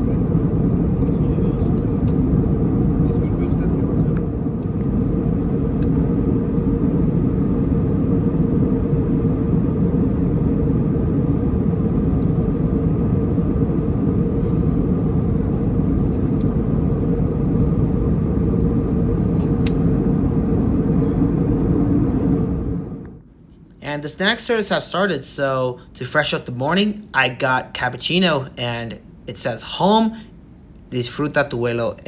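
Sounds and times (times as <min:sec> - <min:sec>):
aircraft cabin engine drone: 0:00.0 - 0:32.0.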